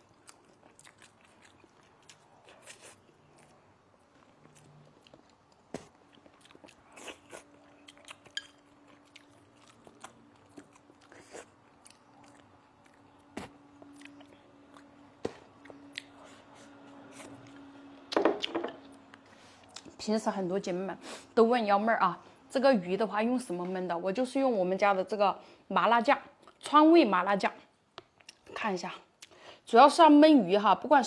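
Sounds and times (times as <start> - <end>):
person chewing: 0.0 - 18.5.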